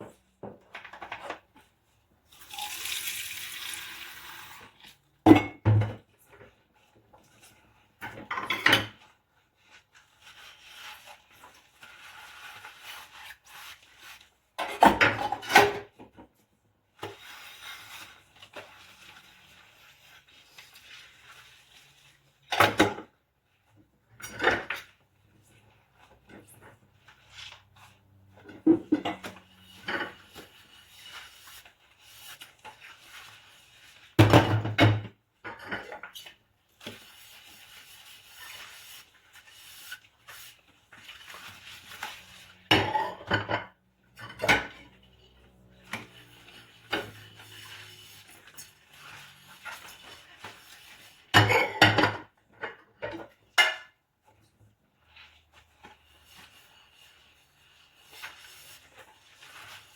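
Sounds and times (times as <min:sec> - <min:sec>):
dishes and cutlery clinking: 0:42.6 - 0:45.4, 0:51.3 - 0:53.9.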